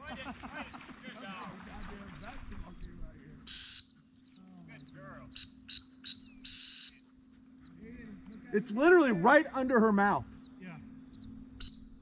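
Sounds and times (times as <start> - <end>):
insects buzzing: 0.0 - 12.0
dog whistle blasts: 3.5 - 4.1, 5.4 - 7.1, 11.6 - 12.0.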